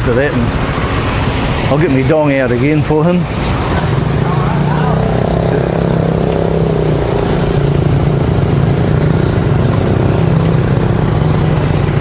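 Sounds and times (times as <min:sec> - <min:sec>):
road noise hiss: 0:00.0 - 0:12.0
motorbike engine running: 0:03.5 - 0:12.0.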